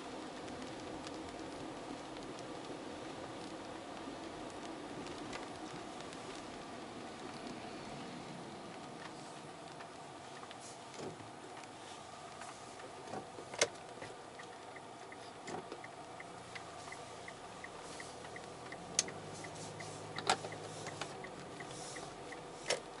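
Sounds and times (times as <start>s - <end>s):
faint regular ticking: 13.6s - 22.9s.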